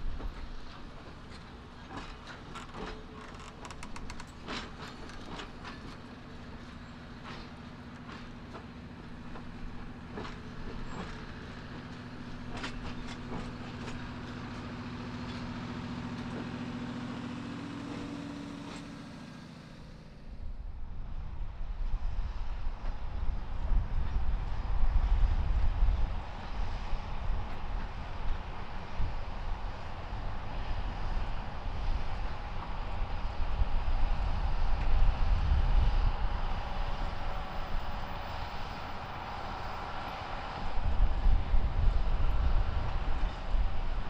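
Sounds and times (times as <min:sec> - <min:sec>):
train wheels clacking over rail joints: 0:00.0 - 0:20.2
train hum: 0:00.0 - 0:44.0
wind noise on microphone: 0:20.8 - 0:29.6, 0:30.2 - 0:44.0.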